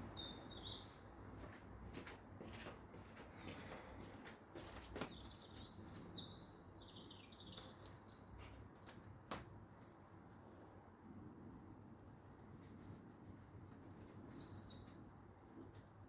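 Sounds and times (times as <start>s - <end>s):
songbird singing: 0.0s - 1.1s, 5.0s - 8.6s, 13.5s - 15.1s.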